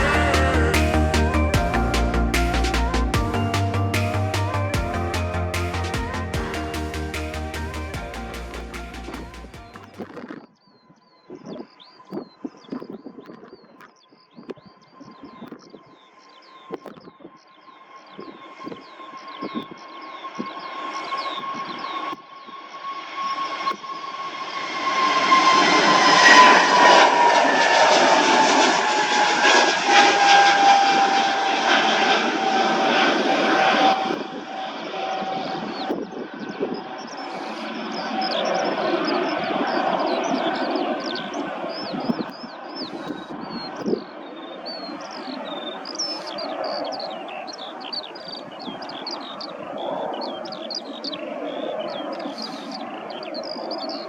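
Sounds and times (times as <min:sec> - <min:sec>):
airliner engines rumbling and whining: 0:00.0 - 0:10.1, 0:17.4 - 0:54.0
steady rushing noise: 0:00.0 - 0:10.1.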